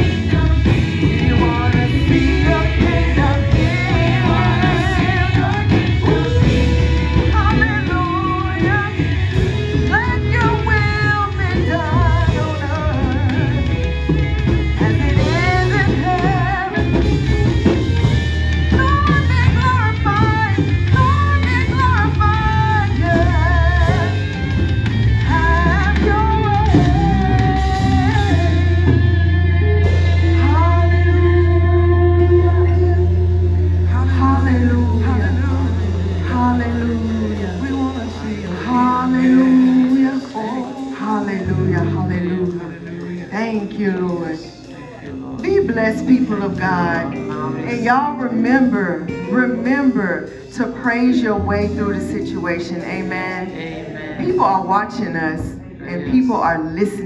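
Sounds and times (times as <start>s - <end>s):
band with heavy bass and drums: 0.0s - 57.0s
person singing with vibrato: 0.0s - 57.0s
man singing held notes: 38.4s - 48.7s.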